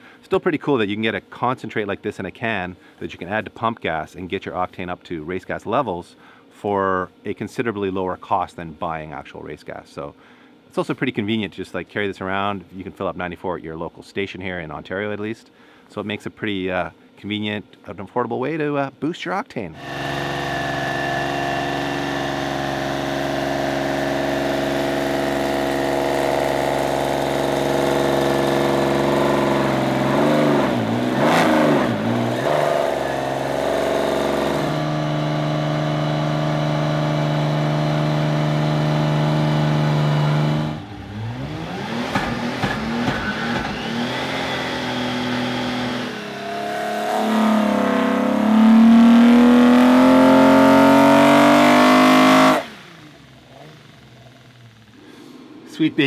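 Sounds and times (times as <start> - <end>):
car engine revving under load: 19.8 - 56.0.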